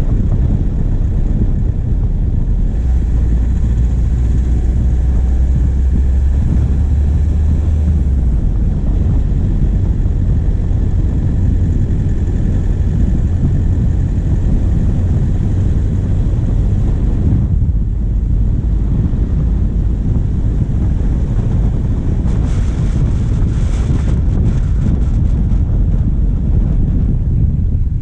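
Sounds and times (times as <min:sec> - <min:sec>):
diesel engine droning: 0:00.0 - 0:28.0
steady road noise: 0:00.0 - 0:28.0
wind: 0:00.0 - 0:28.0.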